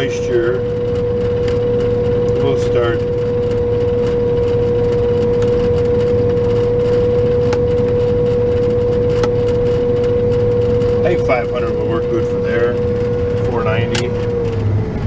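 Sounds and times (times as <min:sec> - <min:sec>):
machinery hum with whine: 0:00.0 - 0:15.0.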